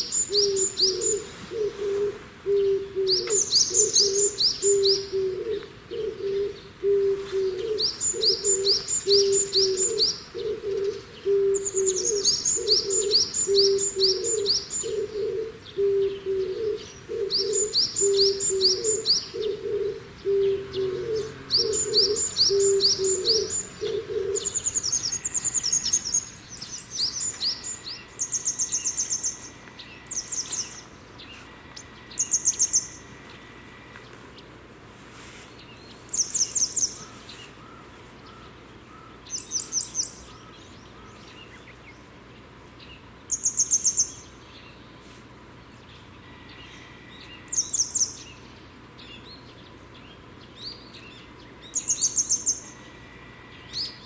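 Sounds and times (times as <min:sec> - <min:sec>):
bird low hooting note: 0:00.0 - 0:26.2.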